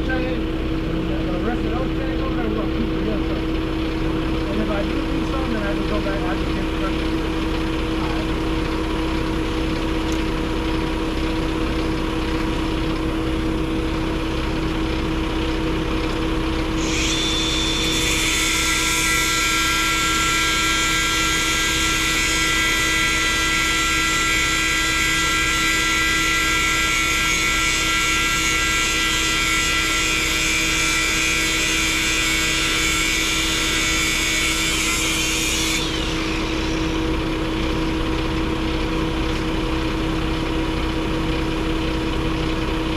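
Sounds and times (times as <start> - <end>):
truck engine running: 0.0 - 16.8, 35.8 - 42.9.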